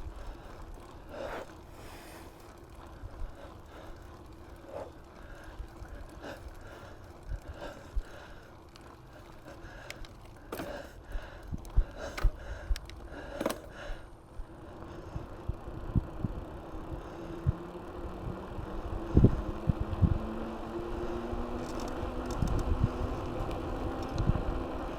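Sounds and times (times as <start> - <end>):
bike knocks and rattles: 10.1 - 14.0.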